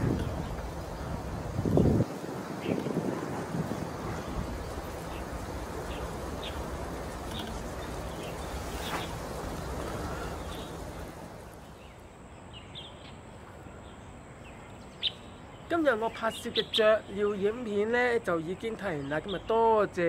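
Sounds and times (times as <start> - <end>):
wind rumble on microphone: 0.0 - 11.8.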